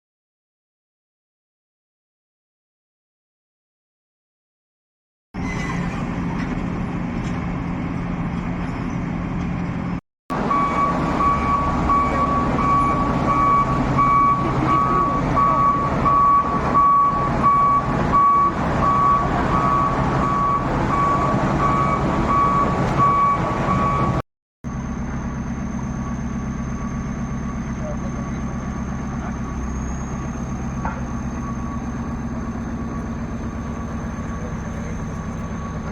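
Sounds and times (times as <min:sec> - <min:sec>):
heavy machinery engine running: 0:05.9 - 0:35.9
reversing alarm beeping: 0:10.3 - 0:24.2, 0:25.7 - 0:35.9.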